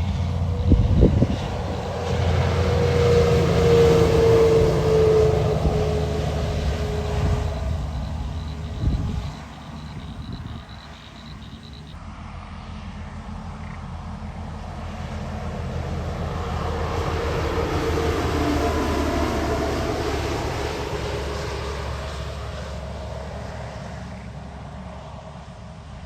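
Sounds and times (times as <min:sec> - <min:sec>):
steady low hum: 0:00.0 - 0:16.2
heavy truck driving past: 0:00.0 - 0:25.7.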